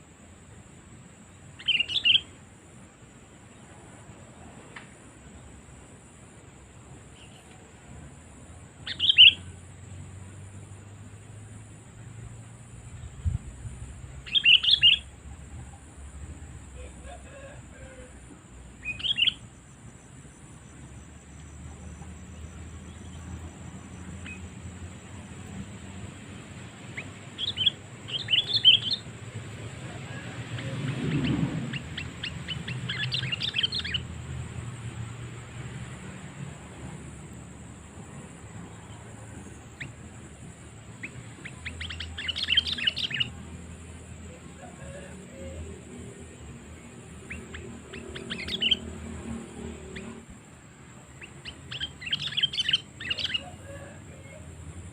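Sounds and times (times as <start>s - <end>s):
faint bird chirp: 1.5s - 2.4s, 8.8s - 9.6s, 12.8s - 18.2s, 18.8s - 24.9s, 26.8s - 29.1s, 30.1s - 34.1s, 38.1s - 45.6s, 46.4s - 50.3s, 51.1s - 54.9s
bird call notes: 1.6s - 2.3s, 8.9s - 9.5s, 14.3s - 15.1s, 18.8s - 19.4s, 26.9s - 29.0s, 30.1s - 34.1s, 41.0s - 43.4s, 47.2s - 48.9s, 51.2s - 53.9s.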